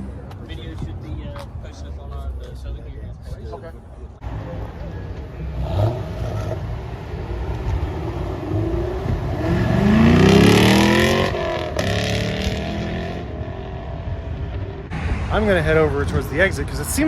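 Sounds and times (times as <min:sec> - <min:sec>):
car engine accelerating: 0:04.2 - 0:15.0.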